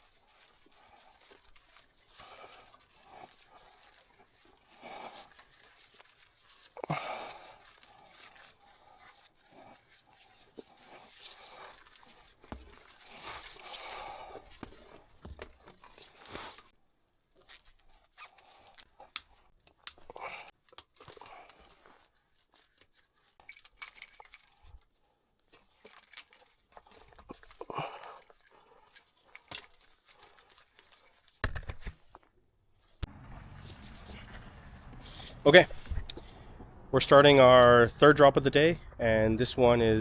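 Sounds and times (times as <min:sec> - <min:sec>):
rustling: 0:00.0 - 0:36.8
handling clicks: 0:19.1 - 0:20.2
scraping: 0:33.0 - 0:37.0.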